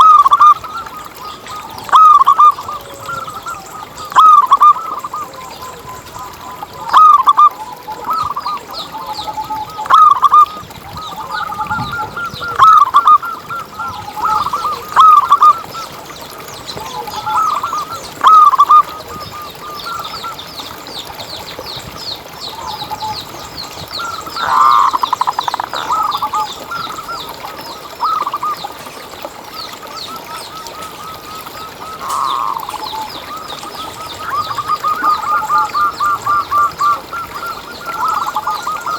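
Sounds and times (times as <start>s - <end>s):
dove cooing: 0.0s - 16.0s, 16.8s - 20.3s, 24.0s - 29.1s, 29.9s - 38.9s
high-pitched bird twittering: 31.8s - 38.9s.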